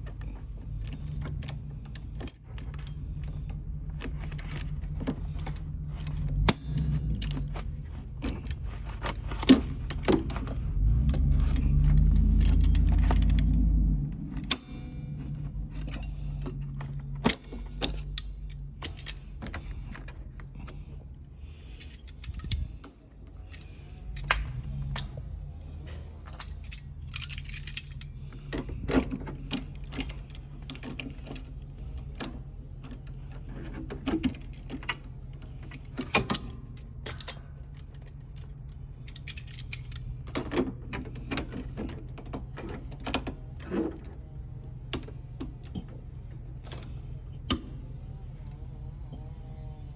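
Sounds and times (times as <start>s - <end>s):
metal tools clinking: 0.0s - 49.9s
steady low hum: 0.0s - 49.9s.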